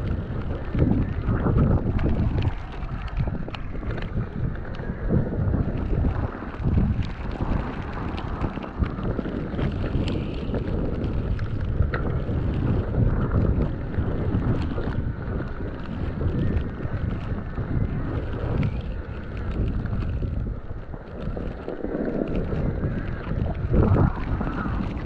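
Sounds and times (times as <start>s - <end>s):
small clicks: 0.0s - 4.8s
wind buffeting microphone: 0.0s - 25.0s.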